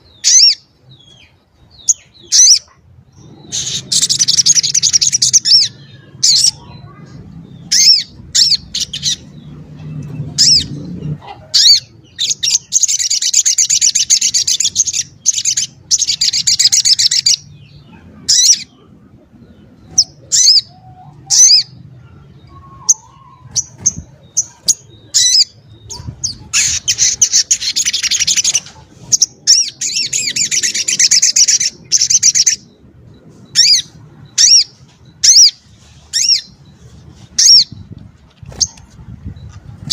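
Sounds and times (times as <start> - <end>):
songbird trilling: 0.0 - 7.0, 19.7 - 32.8, 33.4 - 36.7.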